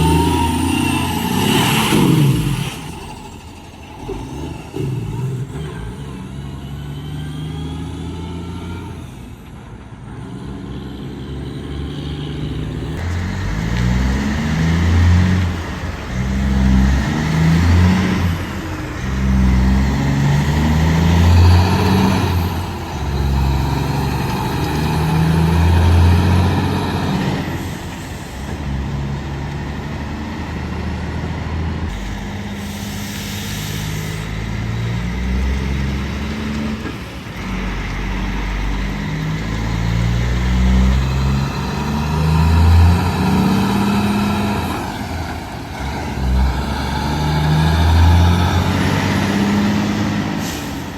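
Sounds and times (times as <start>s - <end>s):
diesel truck engine accelerating: 0.0s - 50.9s
air brake hiss: 31.9s - 34.5s, 50.3s - 50.9s.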